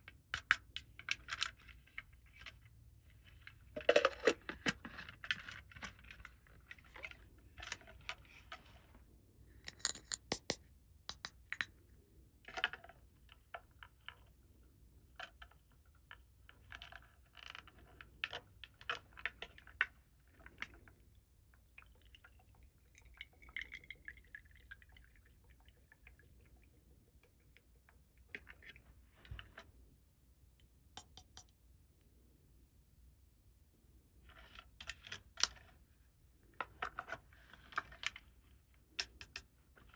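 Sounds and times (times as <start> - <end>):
plastic toy pieces clicking: 9.7 - 11.7.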